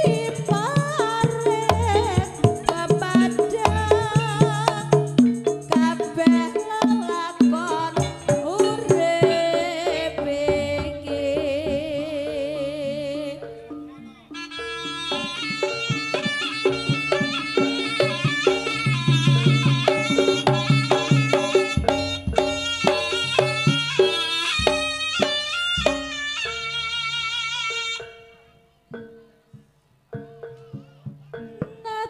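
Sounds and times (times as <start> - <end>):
hand drums and percussion: 0.0 - 28.3, 28.9 - 32.0
nasal reed pipe melody: 13.8 - 28.7.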